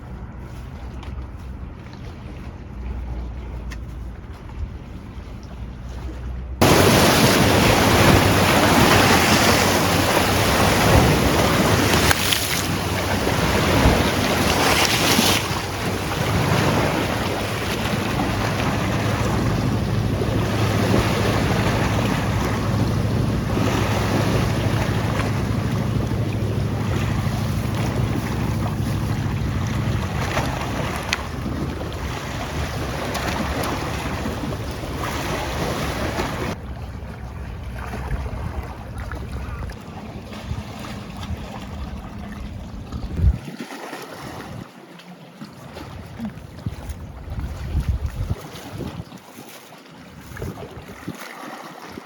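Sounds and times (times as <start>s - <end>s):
sea waves washing: 6.1s - 44.9s
wind buffeting microphone: 6.6s - 43.6s, 46.1s - 49.2s, 50.0s - 52.0s.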